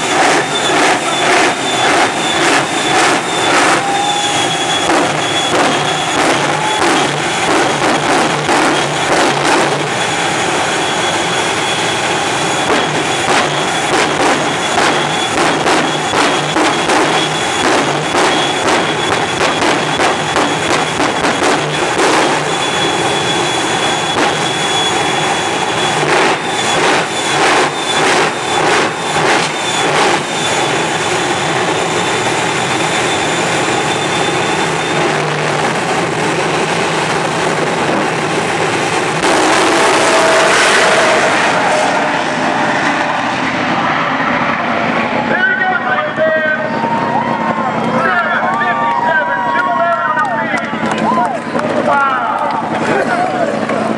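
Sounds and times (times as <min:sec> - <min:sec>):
sharp pops and bangs: 0:00.0 - 0:10.0, 0:12.6 - 0:23.0, 0:24.1 - 0:25.0, 0:25.8 - 0:30.8
high steady whine: 0:00.0 - 0:53.9
turbine engine roar: 0:00.0 - 0:53.9.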